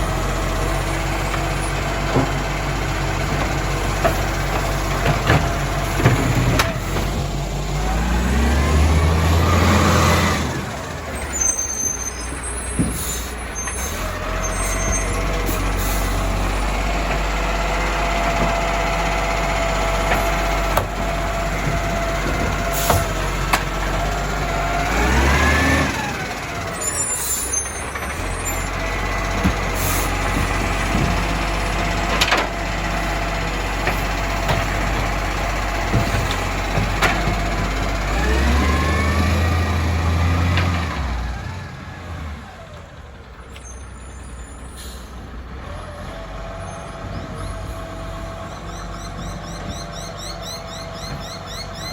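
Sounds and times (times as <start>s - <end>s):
diesel engine revving: 0.0s - 51.9s
sharp clicks and knocks: 29.3s - 32.6s.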